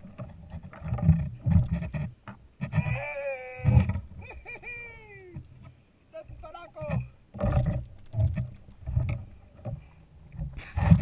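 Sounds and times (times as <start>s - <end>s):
dull low bumps: 5.2s - 11.0s.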